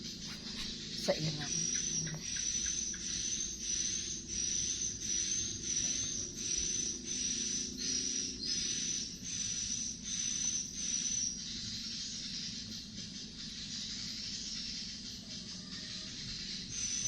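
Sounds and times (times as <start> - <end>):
insect calling in hissy pulses: 0.2 - 17.0.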